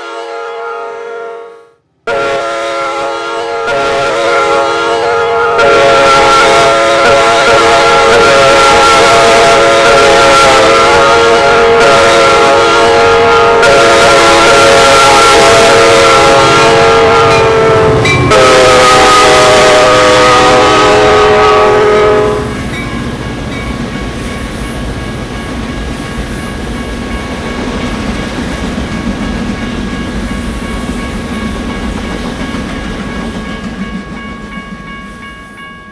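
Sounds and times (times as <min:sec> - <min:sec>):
locomotive chime horn: 0:00.0 - 0:23.9
train rumbling past: 0:01.8 - 0:35.9.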